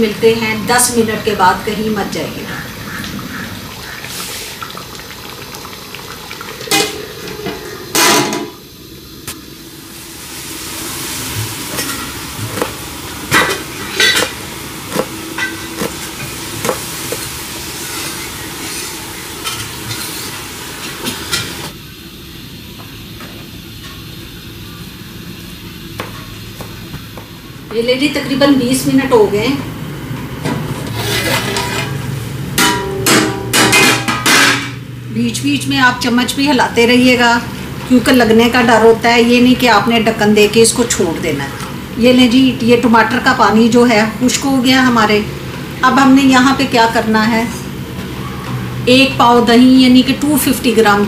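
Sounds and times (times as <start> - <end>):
food sizzling in a pan: 2.8 - 27.4.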